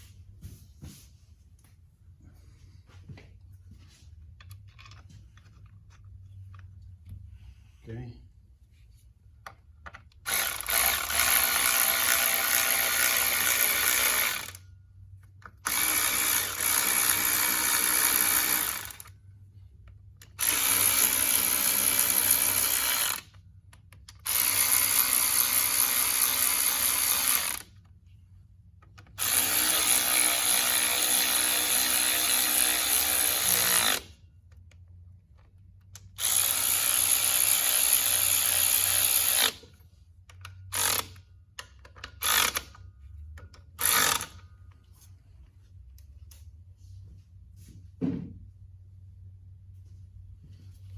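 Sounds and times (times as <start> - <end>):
power drill running: 10.2 - 14.6, 15.6 - 19.1, 20.4 - 23.4, 24.2 - 27.7, 29.2 - 34.1, 36.2 - 39.7, 40.7 - 41.2, 42.2 - 42.7, 43.8 - 44.4.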